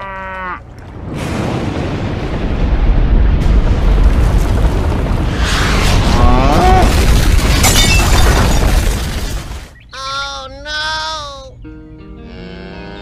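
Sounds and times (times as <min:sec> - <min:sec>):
deep rumbling explosion boom: 0:00.6 - 0:09.8
crashing shattering debris: 0:00.9 - 0:09.8.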